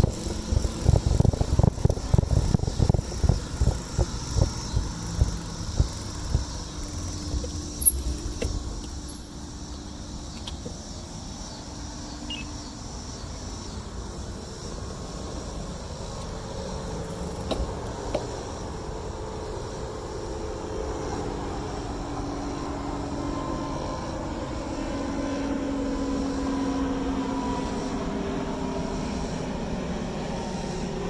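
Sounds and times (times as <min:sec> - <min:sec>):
wind buffeting microphone: 0:00.0 - 0:08.8
high squeaks: 0:07.0 - 0:09.6.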